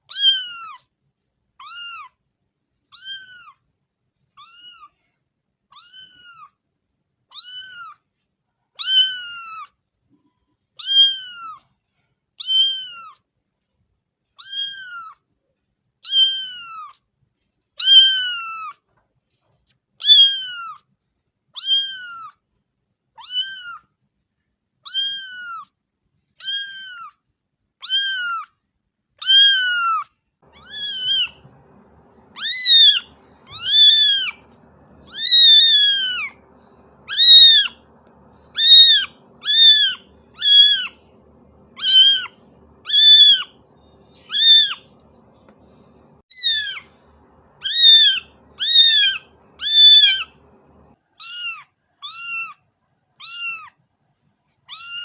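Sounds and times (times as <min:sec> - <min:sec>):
cat meowing: 0:00.0 - 0:00.8, 0:01.6 - 0:02.1, 0:02.9 - 0:03.6, 0:04.4 - 0:04.9, 0:05.7 - 0:06.5, 0:07.3 - 0:08.0, 0:08.8 - 0:09.7, 0:10.8 - 0:11.6, 0:12.4 - 0:13.2, 0:14.4 - 0:15.2, 0:16.0 - 0:16.9, 0:17.8 - 0:18.8, 0:20.0 - 0:20.8, 0:21.6 - 0:22.3, 0:23.2 - 0:23.8, 0:24.9 - 0:25.6, 0:26.4 - 0:27.2, 0:27.8 - 0:28.5, 0:29.2 - 0:45.3, 0:45.9 - 0:52.6, 0:53.2 - 0:53.8, 0:54.7 - 0:55.0
faint low background noise: 0:28.6 - 0:55.0.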